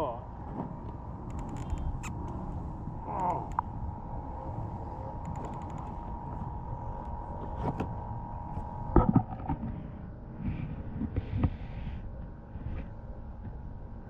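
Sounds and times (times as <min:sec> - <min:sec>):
wind and water: 0:00.0 - 0:14.0
gear knocks and clicks: 0:01.2 - 0:02.4, 0:05.2 - 0:06.0.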